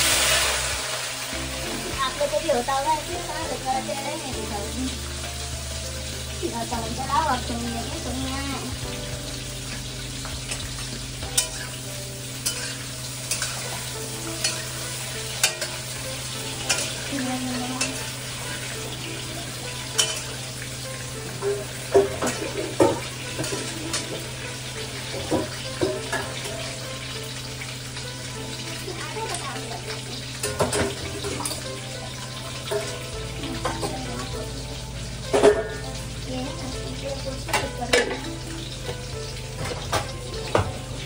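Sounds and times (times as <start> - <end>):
vegetables sizzling in hot oil: 0.0 - 41.0
spatula scraping metal pan: 10.2 - 18.8.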